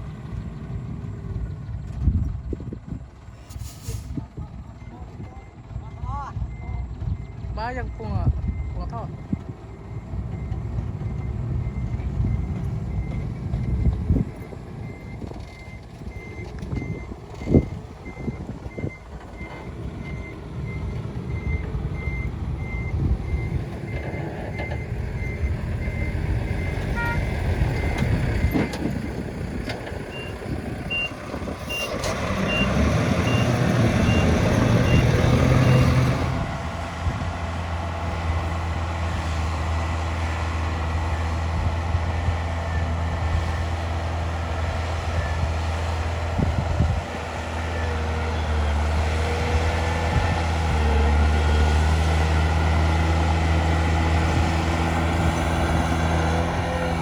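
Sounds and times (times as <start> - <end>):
diesel earthmoving machines running: 0.0 - 57.0
reverse alarm beeping: 4.8 - 28.6, 30.1 - 36.0.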